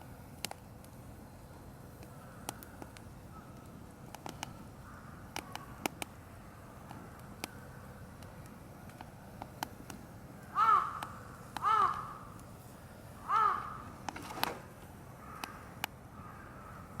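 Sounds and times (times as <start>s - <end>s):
campfire crackling: 0.0s - 17.0s
bird calling loudly: 10.5s - 12.4s, 13.2s - 14.0s.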